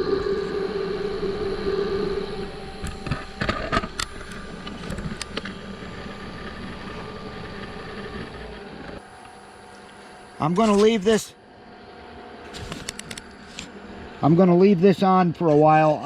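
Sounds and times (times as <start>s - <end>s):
wood lathe running: 0.0s - 9.0s.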